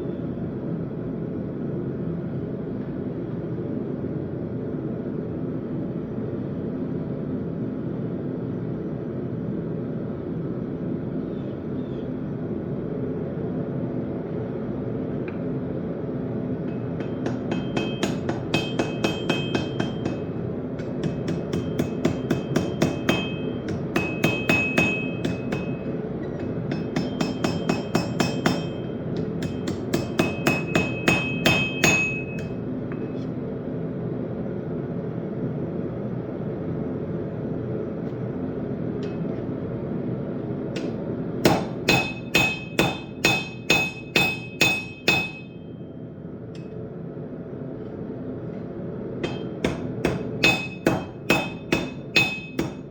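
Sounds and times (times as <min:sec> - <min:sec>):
hammer striking steel on anvil: 0:16.6 - 0:33.2, 0:40.8 - 0:45.7, 0:49.2 - 0:52.9.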